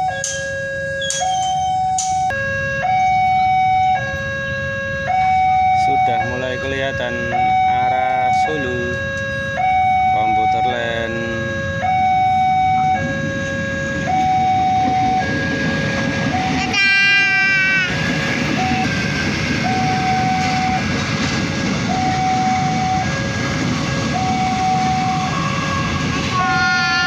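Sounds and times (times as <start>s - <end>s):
two-tone warning signal: 0.0s - 21.2s, 21.8s - 27.0s
train rumbling: 0.0s - 27.0s
train horn: 8.6s - 19.0s, 21.9s - 27.0s.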